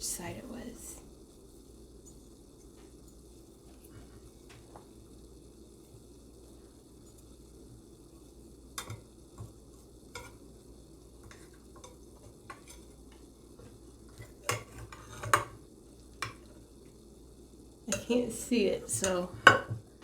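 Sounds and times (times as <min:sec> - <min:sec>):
utensil scraping a dish: 0:14.2 - 0:15.5.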